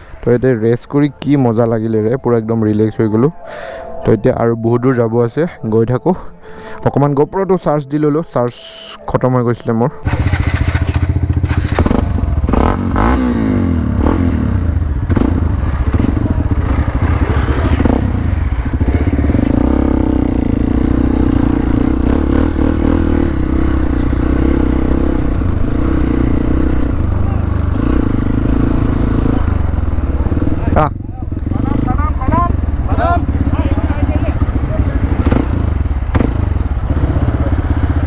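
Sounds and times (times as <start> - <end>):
motorcycle engine revving and idling: 10.0 - 38.0.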